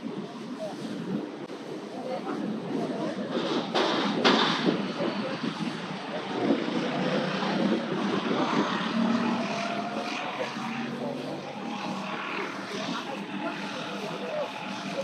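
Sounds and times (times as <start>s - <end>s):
engine drone: 0.0s - 15.0s
outdoor noise: 0.0s - 15.0s
faint drifting tones: 4.7s - 15.0s.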